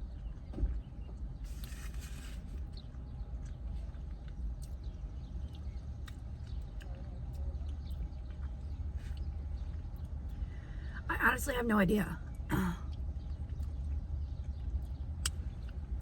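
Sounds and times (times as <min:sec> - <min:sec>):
steady low rumble: 0:00.0 - 0:16.0
crunchy rustle: 0:01.4 - 0:04.0.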